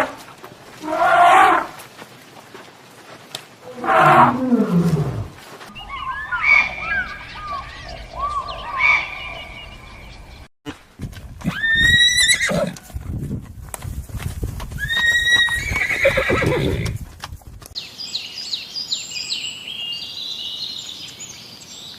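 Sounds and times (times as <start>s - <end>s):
clip-clop of hooves: 0.0s - 5.8s, 10.7s - 17.8s
horse neighing: 3.6s - 6.8s, 11.4s - 12.8s, 14.8s - 17.0s
high repeated chirps: 5.7s - 10.0s.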